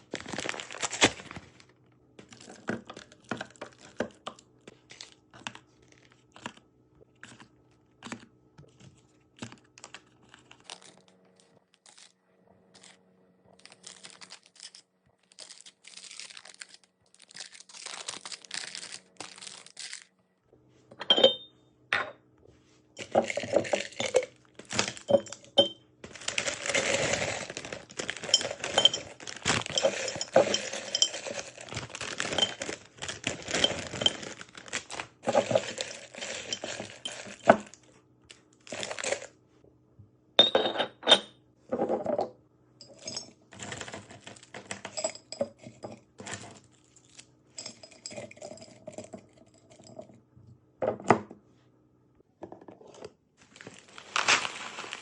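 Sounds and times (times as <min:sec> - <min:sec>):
hard items clinking and clattering: 0:00.0 - 0:01.6, 0:02.2 - 0:05.5, 0:20.9 - 0:22.2, 0:23.0 - 0:37.8, 0:40.4 - 0:50.2.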